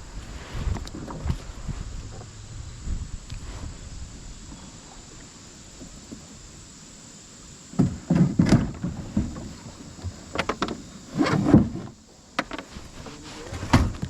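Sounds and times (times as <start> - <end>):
steady low hiss: 0.0 - 14.0
kayak gear knocking and clattering: 7.7 - 14.0.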